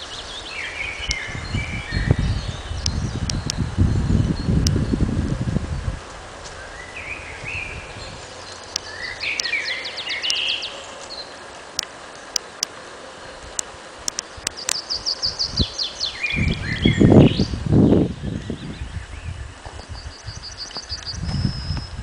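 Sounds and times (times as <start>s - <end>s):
songbirds singing: 0.0s - 22.0s
sharp clicks: 8.5s - 9.6s, 13.4s - 14.9s.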